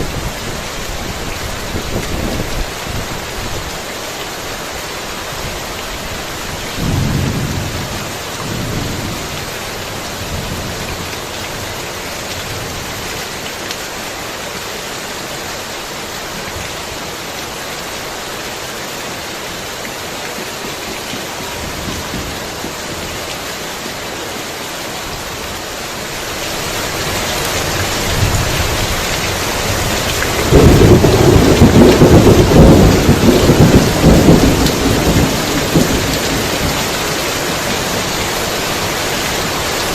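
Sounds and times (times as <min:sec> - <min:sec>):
heavy rain falling: 0:00.0 - 0:39.9
thunder rumbling: 0:06.8 - 0:09.6, 0:27.6 - 0:37.2.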